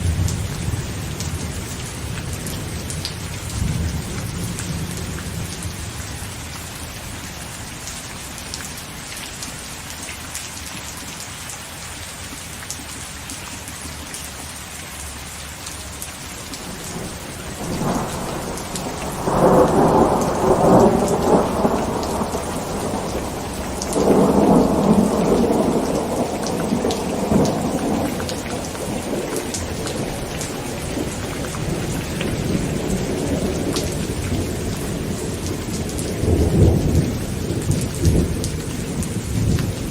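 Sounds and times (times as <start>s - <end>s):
heavy rain on a tent: 0.0s - 39.9s
thunder rumbling: 16.6s - 39.9s.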